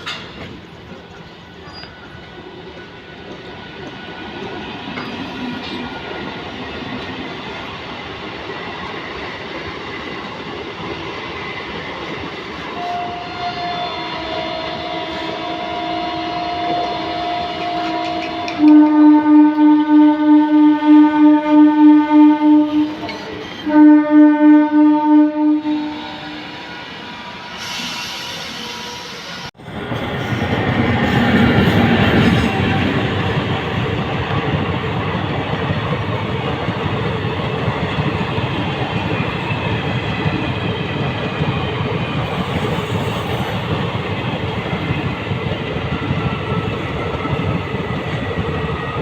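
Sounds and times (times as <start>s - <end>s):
train rail noise: 0.0s - 49.0s
train horn blasts: 12.8s - 26.9s.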